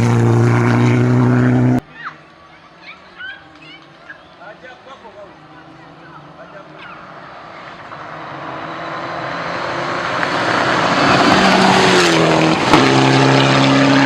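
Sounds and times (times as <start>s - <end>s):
rally car engine: 0.0s - 1.8s, 5.3s - 14.0s.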